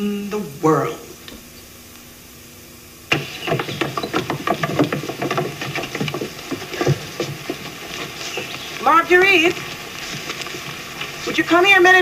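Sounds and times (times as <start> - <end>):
desks and chairs clattering on wood: 3.1 - 11.8.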